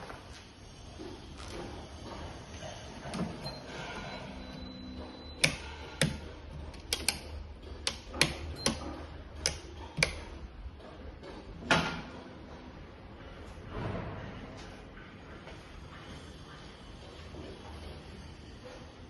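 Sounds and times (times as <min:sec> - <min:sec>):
sharp clicks and knocks: 0:05.0 - 0:12.8.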